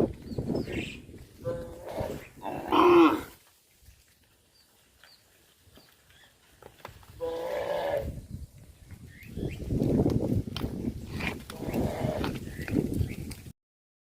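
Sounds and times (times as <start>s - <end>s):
cattle mooing: 1.4s - 3.4s.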